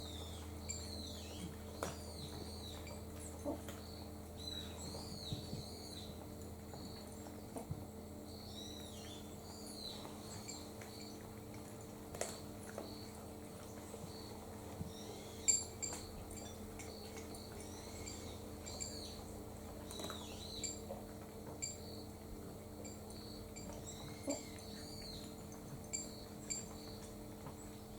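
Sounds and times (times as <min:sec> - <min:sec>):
small birds chirping: 0:00.0 - 0:07.6, 0:08.3 - 0:11.3, 0:12.2 - 0:20.8, 0:23.1 - 0:27.8
steady low hum: 0:00.0 - 0:27.9.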